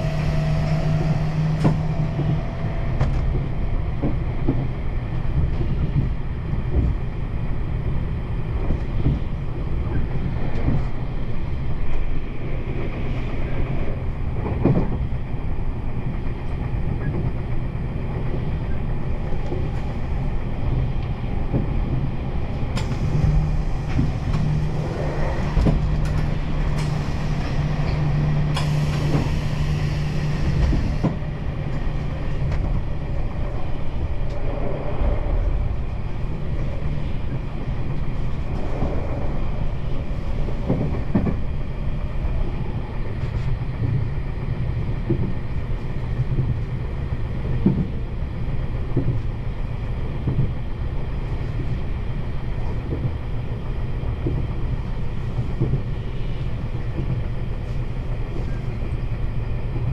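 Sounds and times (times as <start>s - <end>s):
train rumble: 0.0s - 59.9s
hiss: 26.8s - 30.9s.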